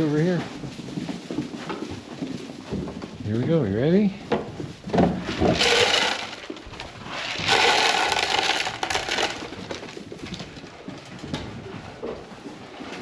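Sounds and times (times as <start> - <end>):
dry grain pouring into pans: 5.3 - 9.8
grain rattling: 5.3 - 10.0.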